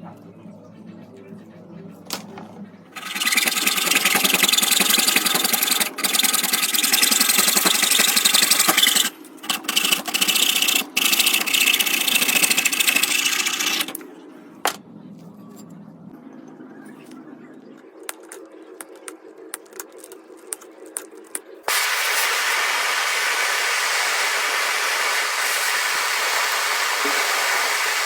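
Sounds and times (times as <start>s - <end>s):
wood chipper grinding wood: 3.0s - 14.0s, 21.7s - 28.0s.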